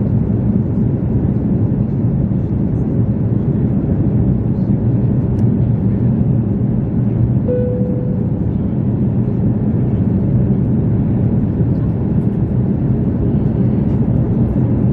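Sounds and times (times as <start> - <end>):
jet engines rumbling: 0.0 - 14.9
short steady tone: 7.5 - 8.6.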